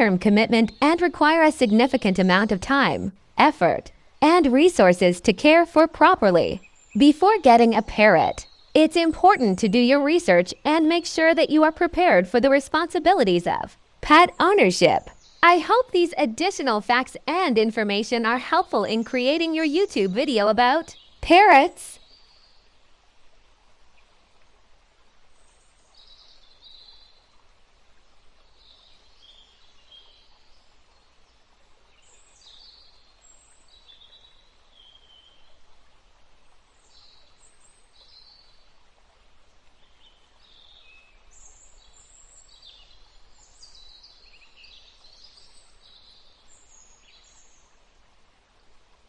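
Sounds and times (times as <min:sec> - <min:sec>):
birds chirping: 0:00.0 - 0:22.0
outdoor background hiss: 0:00.0 - 0:49.0.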